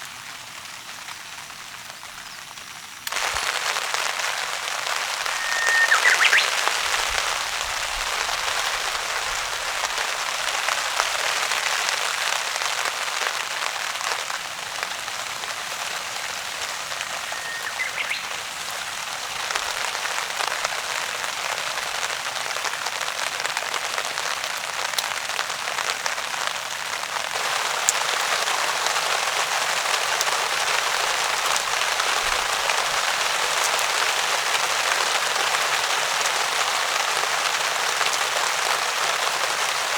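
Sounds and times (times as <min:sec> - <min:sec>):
heavy rain on a tarp: 0:00.0 - 0:39.9
brief high chirps: 0:05.2 - 0:06.8.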